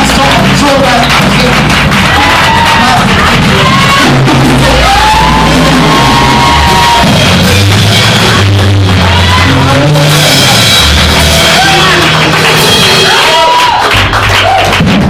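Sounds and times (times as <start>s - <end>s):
bass guitar: 0.0s - 15.0s
praise band playing upbeat music: 0.0s - 15.0s
voices shouting and singing: 2.1s - 13.7s.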